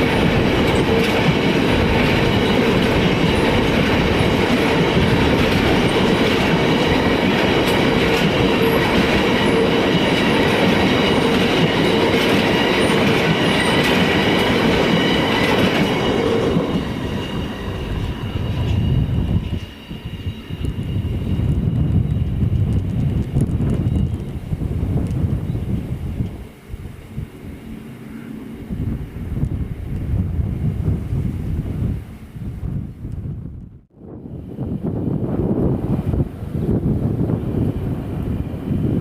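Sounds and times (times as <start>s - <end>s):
train wheels clattering on rails: 0.0s - 25.3s.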